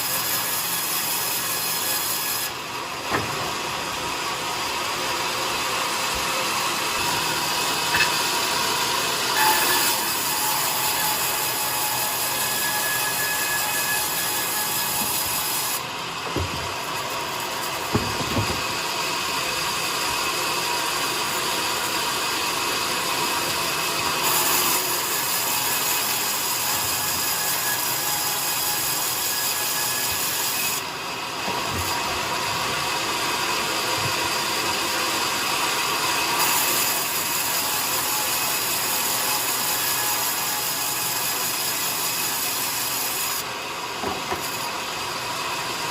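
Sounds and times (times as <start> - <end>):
sawmill saw cutting wood: 0.0 - 45.9
knocks: 16.3 - 16.7, 17.9 - 18.8.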